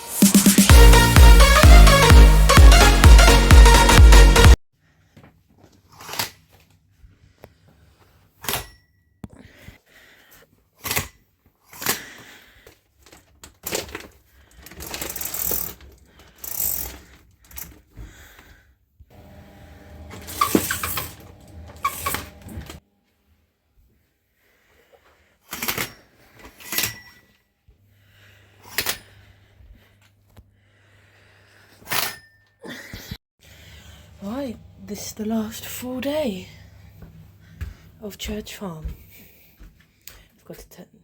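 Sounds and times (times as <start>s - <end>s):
electronic dance music: 0.0s - 4.6s
objects clattering: 19.2s - 22.8s.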